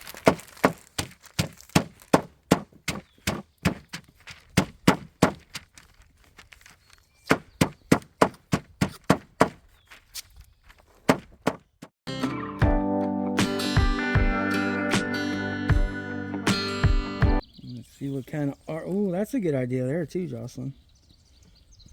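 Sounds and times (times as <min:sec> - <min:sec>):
hammer pounding on paper: 0:00.2 - 0:05.6, 0:07.3 - 0:09.6, 0:11.1 - 0:12.0
guitar music: 0:12.1 - 0:17.4.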